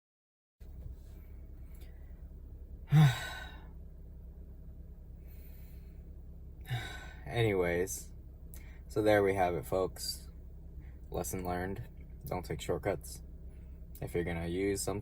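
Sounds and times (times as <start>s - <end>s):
low background hum: 0.6s - 15.0s
man sighing: 2.9s - 3.7s, 6.7s - 7.3s.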